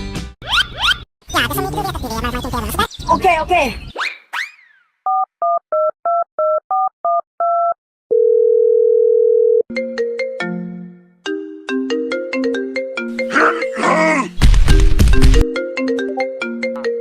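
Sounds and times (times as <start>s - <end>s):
keypad dialing beeps: 5.1s - 7.8s
phone ring signal: 8.1s - 9.7s
plucked ringtone melody: 15.4s - 17.0s.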